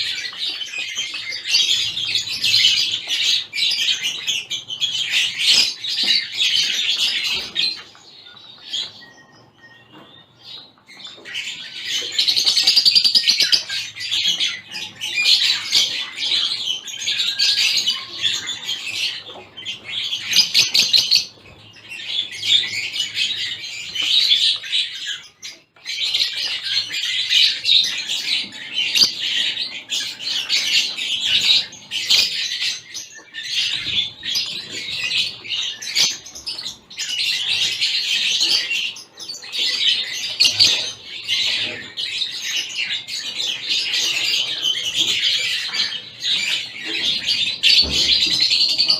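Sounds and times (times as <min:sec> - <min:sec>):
finches chirping and chattering: 0:00.0 - 0:48.9.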